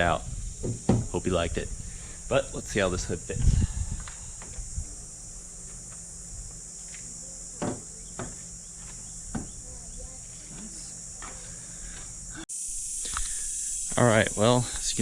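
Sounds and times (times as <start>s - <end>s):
crickets chirping: 0.0s - 15.0s
light knocks: 9.3s - 9.6s.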